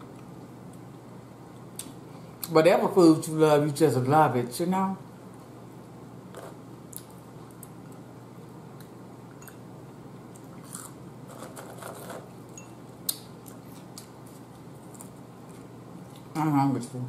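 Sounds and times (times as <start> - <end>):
steady low hum: 0.0 - 17.0
person chewing french fries: 10.3 - 12.2, 13.0 - 16.3.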